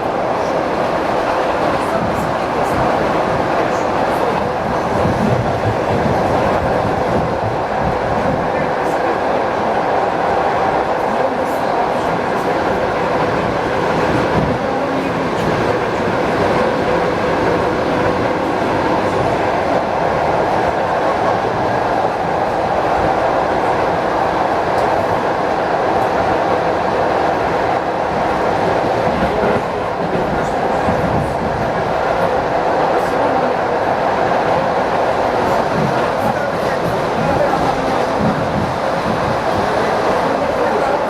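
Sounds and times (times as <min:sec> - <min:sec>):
electric train hum: 0:00.0 - 0:41.0
train wheels rumbling on rails: 0:00.0 - 0:41.0.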